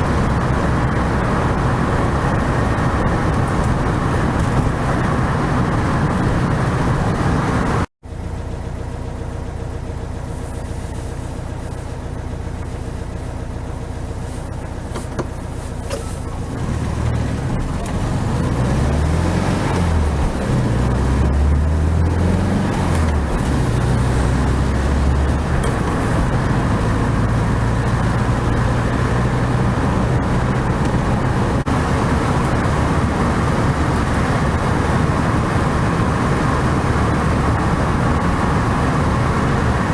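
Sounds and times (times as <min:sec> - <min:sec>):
car engine running: 0:00.0 - 0:39.9
tyre and road noise: 0:00.0 - 0:39.9.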